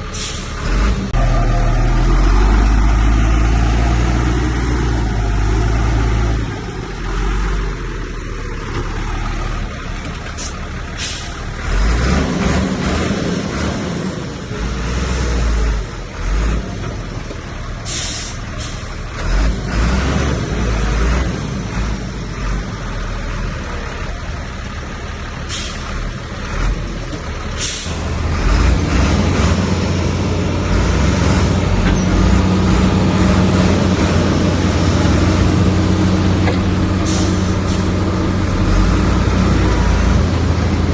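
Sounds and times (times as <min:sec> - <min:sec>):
heavy diesel engines working: 0:00.0 - 0:40.9
air brake hisses: 0:00.1 - 0:00.6, 0:10.4 - 0:11.4, 0:17.8 - 0:18.9, 0:25.5 - 0:25.9, 0:27.6 - 0:28.0, 0:37.0 - 0:38.0.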